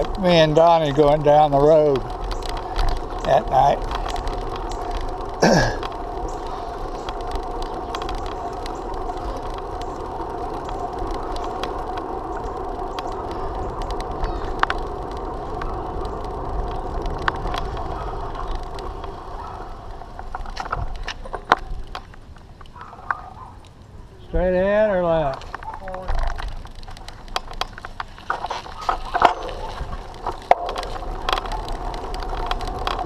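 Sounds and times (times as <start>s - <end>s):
bicycle tyre and drivetrain noise: 0.0s - 33.0s.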